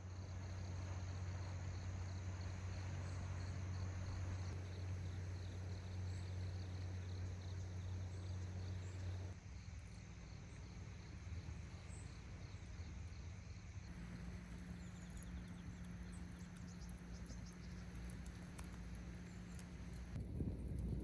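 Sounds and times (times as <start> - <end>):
insects chirping faintly: 0.0 - 20.2
faint ticks: 13.9 - 21.0
low outdoor rumble: 13.9 - 21.0.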